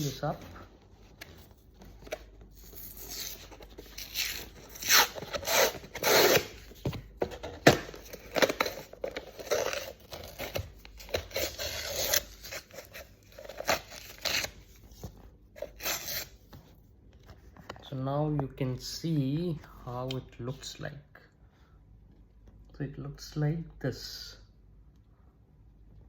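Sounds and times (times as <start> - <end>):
container seal tearing: 3.0 - 6.6.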